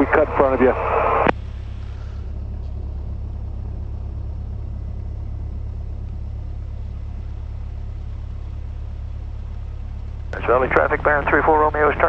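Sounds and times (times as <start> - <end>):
airplane engine and propeller droning: 0.0 - 12.0.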